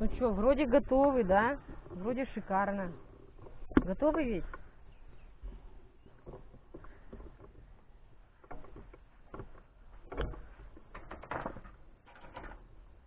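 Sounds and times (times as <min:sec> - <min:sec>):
knocks and clatters of handling: 0:05.4 - 0:13.0.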